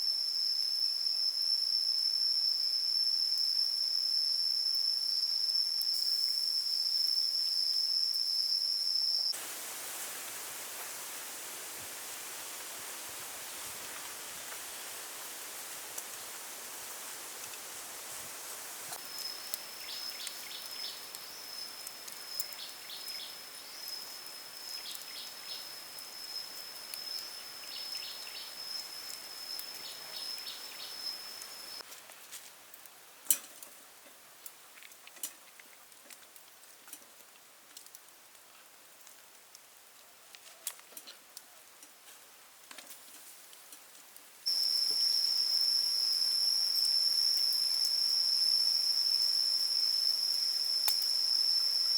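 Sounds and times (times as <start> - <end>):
insects trilling: 0.0 - 9.4, 12.6 - 31.8, 44.5 - 51.9
loud high insect drone: 44.5 - 51.9.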